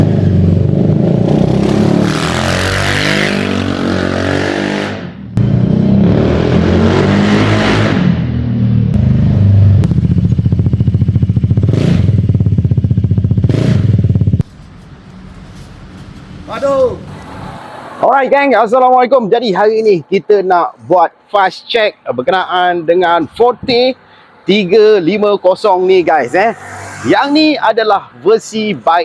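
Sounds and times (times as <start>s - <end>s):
scooter engine revving and idling: 9.0s - 16.8s.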